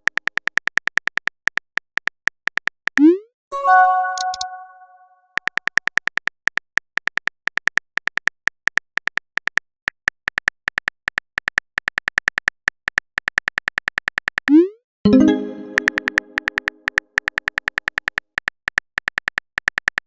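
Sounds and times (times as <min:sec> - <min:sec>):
rising pop message sound: 0:03.0 - 0:05.0, 0:14.5 - 0:16.9
phone keyboard typing clicks: 0:03.9 - 0:04.6, 0:09.9 - 0:20.0.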